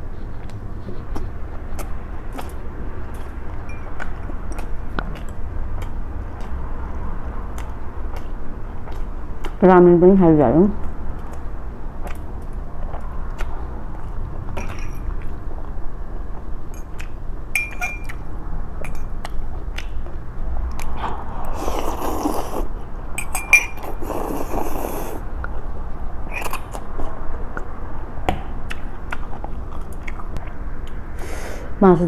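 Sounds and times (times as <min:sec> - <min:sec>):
chewing: 0:00.0 - 0:09.6, 0:10.8 - 0:27.8, 0:28.4 - 0:31.2
utensil clinking against bowl: 0:03.7 - 0:04.0, 0:14.6 - 0:15.1, 0:17.6 - 0:18.2, 0:18.8 - 0:19.1, 0:23.2 - 0:24.0
slurping noodles: 0:20.8 - 0:22.8, 0:23.8 - 0:25.3.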